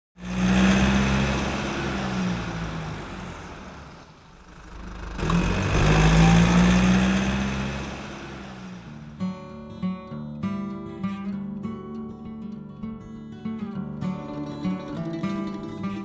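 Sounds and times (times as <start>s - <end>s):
vehicle engine running: 0.2s - 9.2s.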